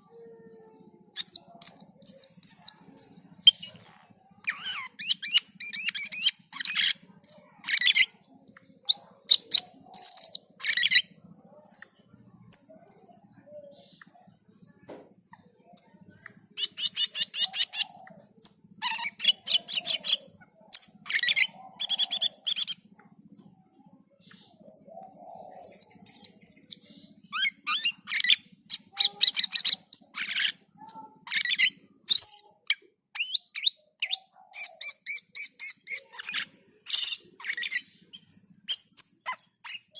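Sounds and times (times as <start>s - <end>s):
songbird harsh chattering: 0.0s - 14.3s, 15.3s - 23.6s, 24.2s - 39.9s.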